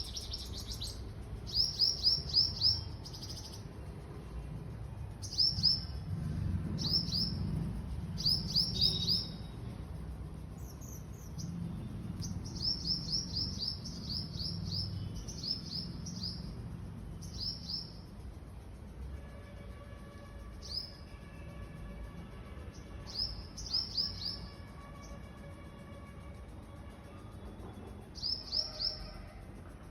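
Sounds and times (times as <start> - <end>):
small bird chirping: 0.0 - 3.8, 5.2 - 6.1, 6.8 - 7.6, 8.2 - 9.6, 10.6 - 18.2, 23.1 - 24.5, 28.2 - 29.1.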